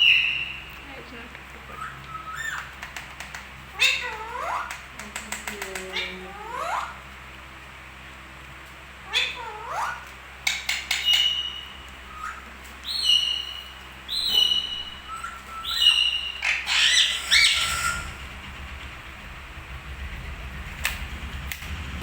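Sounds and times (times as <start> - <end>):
parrot squawking: 0.0 - 0.7, 1.7 - 2.9, 3.7 - 4.8, 5.8 - 7.0, 9.0 - 18.4
parrot whistling: 1.7 - 2.7, 10.9 - 18.4.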